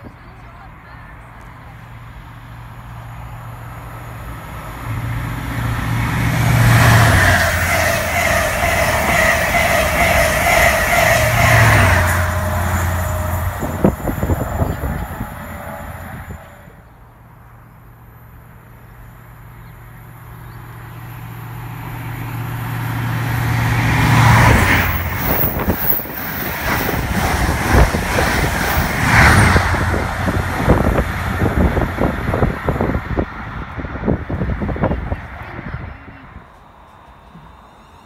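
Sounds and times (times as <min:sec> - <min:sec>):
train rumble: 0:00.0 - 0:18.3, 0:19.0 - 0:38.0
diesel engine drone: 0:00.8 - 0:38.0
wheels clattering on rails: 0:05.4 - 0:16.4.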